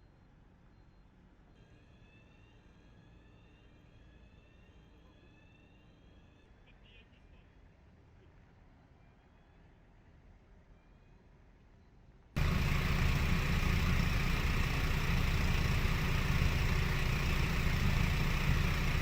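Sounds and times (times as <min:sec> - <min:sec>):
jet engines running: 0:12.4 - 0:19.0.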